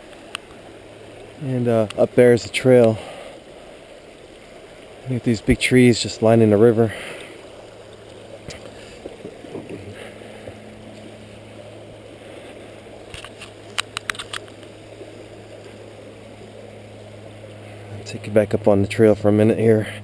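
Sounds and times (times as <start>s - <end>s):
low hum: 0.0s - 20.0s
river water rushing over rapids: 0.0s - 20.0s
sharp clicks: 13.1s - 14.7s.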